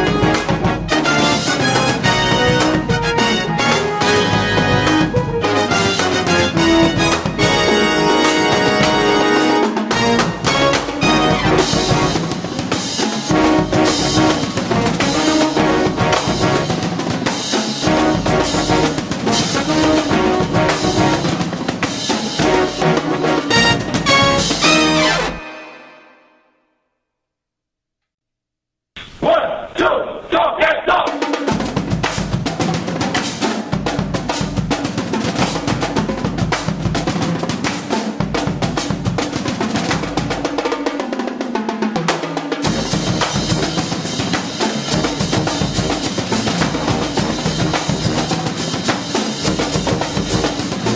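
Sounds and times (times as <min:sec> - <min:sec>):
driving drum beat: 0:00.0 - 0:25.6, 0:30.6 - 0:50.9
brass band music: 0:00.0 - 0:26.6, 0:42.6 - 0:50.9.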